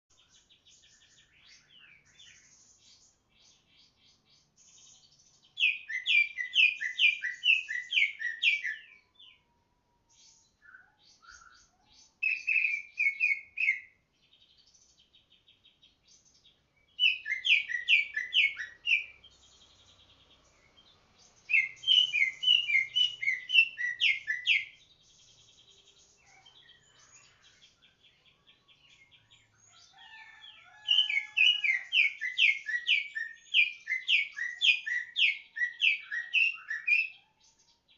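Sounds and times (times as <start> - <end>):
soft high bird twittering: 0.1 - 9.4, 10.2 - 37.9
bird singing sharp repeated notes: 3.5 - 9.4, 10.3 - 29.5, 30.3 - 37.9.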